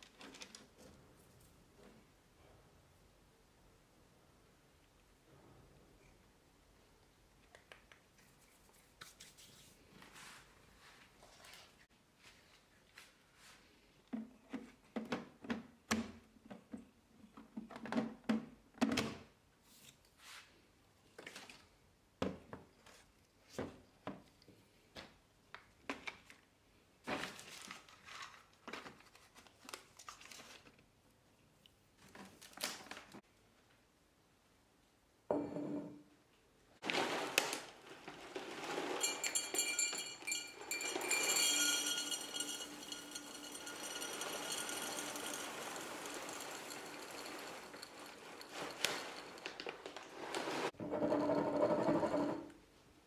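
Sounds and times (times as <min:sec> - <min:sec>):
objects knocking and clinking: 0:38.4 - 0:52.5.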